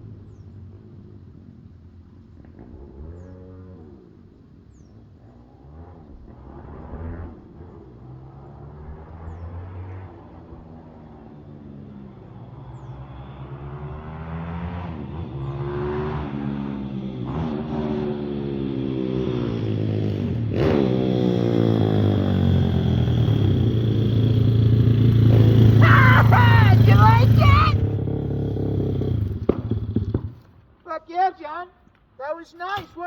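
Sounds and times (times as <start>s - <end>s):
pit bike engine revving: 13.8s - 30.5s.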